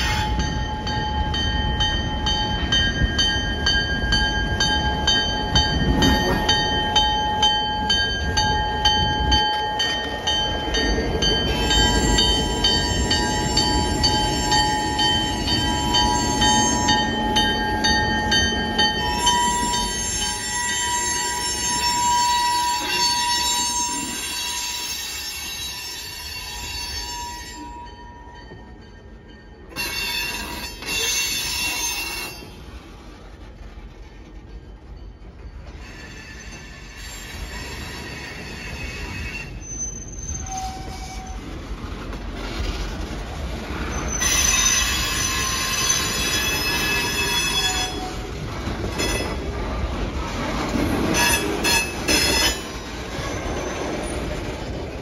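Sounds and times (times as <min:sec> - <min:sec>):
crossing bell ringing: 0:00.0 - 0:32.6, 0:44.2 - 0:49.9, 0:50.8 - 0:53.6
diesel locomotive rumbling: 0:00.0 - 0:55.0
train wheels squealing: 0:08.8 - 0:32.7, 0:34.2 - 0:41.7, 0:43.8 - 0:49.5, 0:50.9 - 0:54.9.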